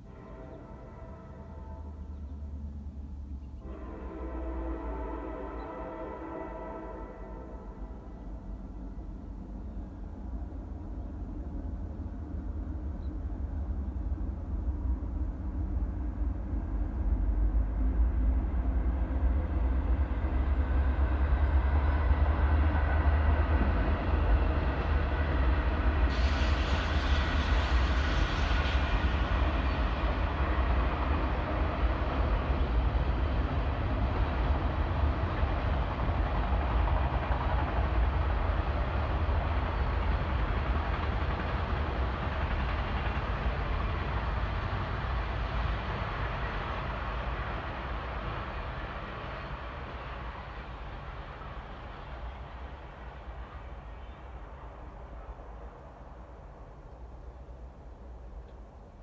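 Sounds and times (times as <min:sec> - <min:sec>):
train rumbling past: 0:00.0 - 0:59.0
brief high hiss: 0:26.1 - 0:29.0.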